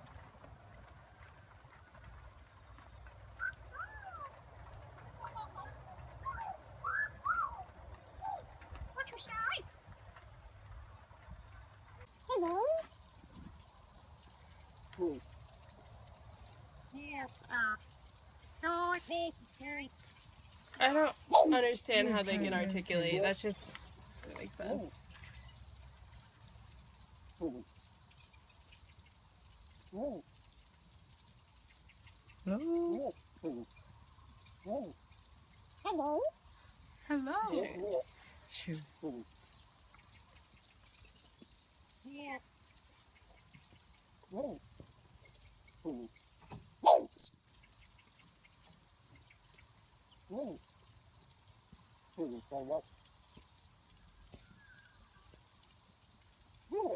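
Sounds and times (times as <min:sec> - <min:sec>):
crickets chirping: 0:11.5 - 0:56.9
voice-like calls: 0:20.8 - 0:22.2, 0:46.8 - 0:47.3.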